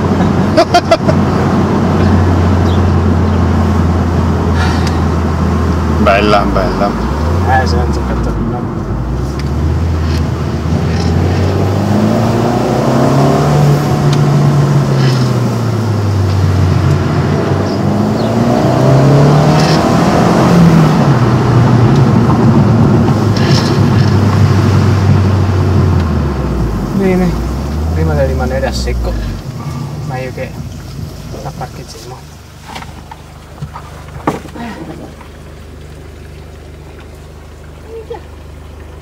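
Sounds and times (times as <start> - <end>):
car engine accelerating from inside cabin: 1.1 - 32.0.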